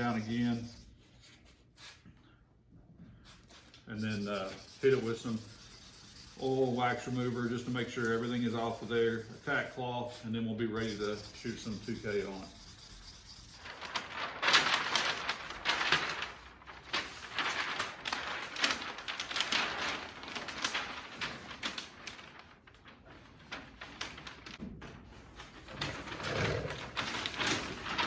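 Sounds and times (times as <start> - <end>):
hand sanding gritty hiss: 3.3 - 13.6.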